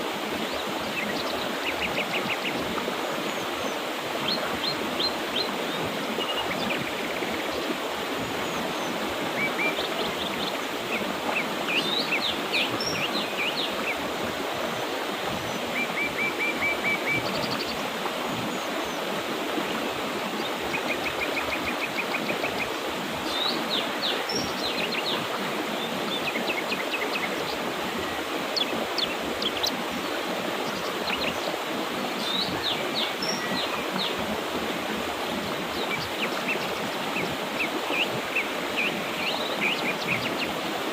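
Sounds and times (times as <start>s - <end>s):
river rushing: 0.0s - 40.9s
birds chirping and trilling: 3.3s - 14.1s.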